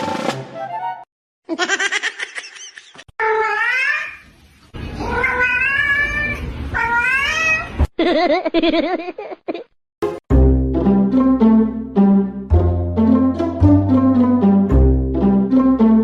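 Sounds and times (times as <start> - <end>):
cat meowing and yowling: 5.0 - 7.8.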